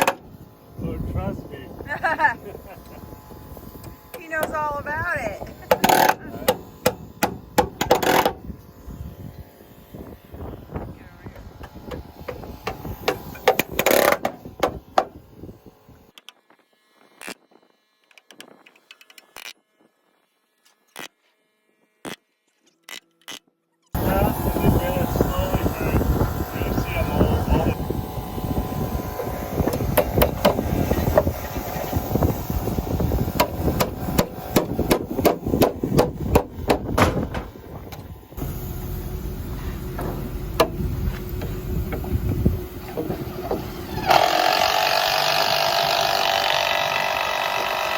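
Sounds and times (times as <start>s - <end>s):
nails driven into wood: 0.0s - 0.2s, 5.7s - 8.4s, 11.9s - 15.1s, 29.6s - 31.4s, 33.3s - 38.1s, 42.9s - 47.9s
hammer striking nails into metal: 6.8s - 8.4s, 33.4s - 37.5s.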